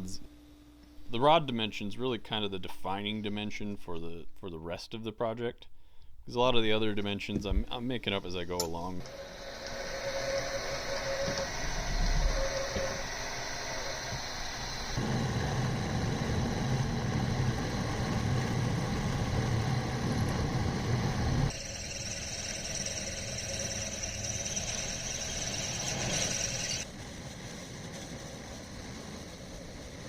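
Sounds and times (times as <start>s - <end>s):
machine tool low hum: 5.6s - 30.0s
machine tool high whine: 9.0s - 27.0s.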